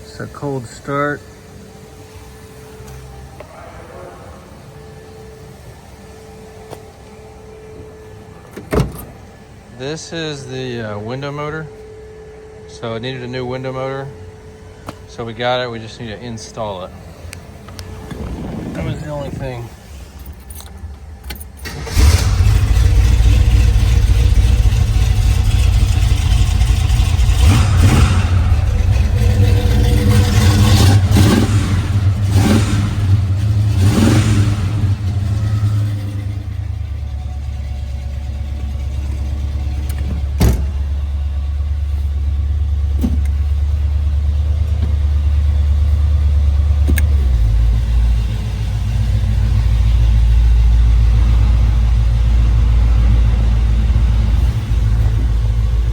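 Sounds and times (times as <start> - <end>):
car engine starting and revving: 15.9 - 20.6, 21.3 - 55.9.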